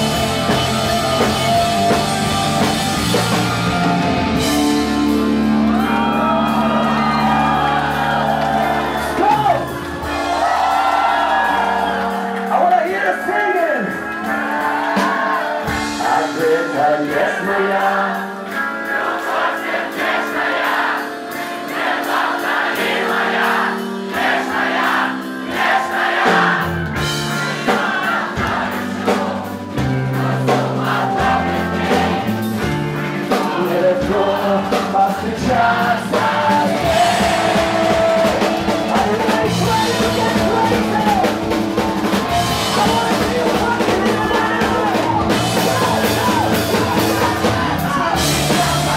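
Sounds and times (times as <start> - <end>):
drums: 0.0 - 48.9
live band playing: 0.0 - 48.9
person singing: 13.8 - 18.6, 33.3 - 48.9.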